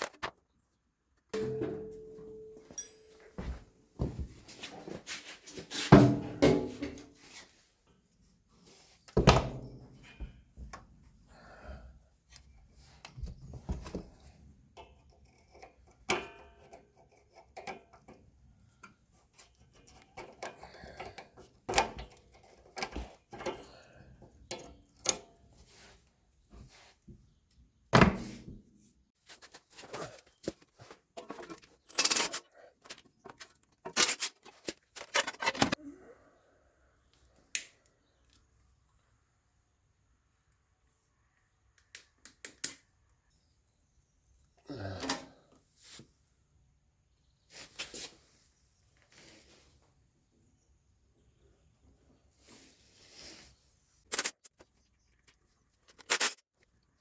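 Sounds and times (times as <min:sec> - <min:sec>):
tools and parts clattering: 0:01.4 - 0:07.3, 0:14.8 - 0:25.9, 0:29.3 - 0:35.8, 0:54.1 - 0:56.4.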